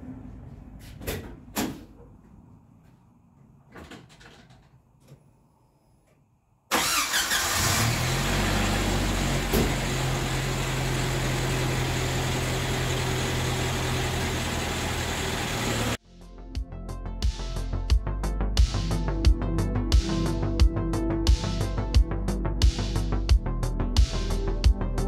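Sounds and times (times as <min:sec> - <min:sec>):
car engine starting and idling: 0:06.7 - 0:16.0.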